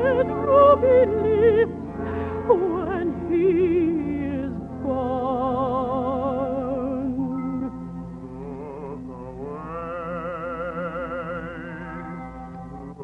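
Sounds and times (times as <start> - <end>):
operatic solo singing: 8.2 - 13.0.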